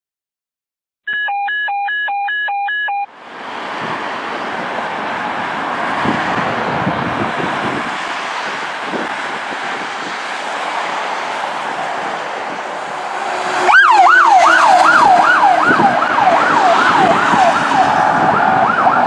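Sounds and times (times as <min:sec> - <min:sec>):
two-tone electronic beeping: 0:01.1 - 0:03.1
road noise: 0:03.0 - 0:19.0
wind noise: 0:03.6 - 0:19.0.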